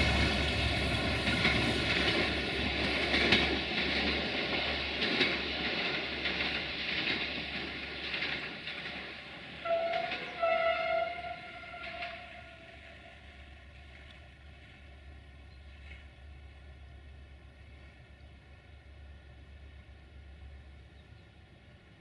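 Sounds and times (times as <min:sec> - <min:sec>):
train rumble and wheel clicks: 0:00.0 - 0:22.0
train horn blasts: 0:09.6 - 0:13.2.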